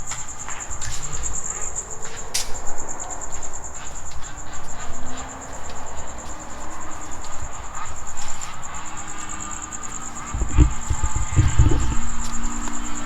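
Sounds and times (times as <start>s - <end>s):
crickets chirping: 0.0s - 13.0s
low rumbling noise: 9.5s - 13.0s.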